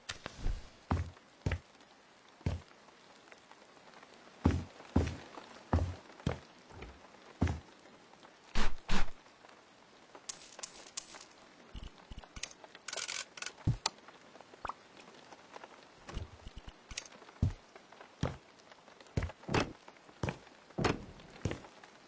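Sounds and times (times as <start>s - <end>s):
light clinking: 10.3s - 12.4s.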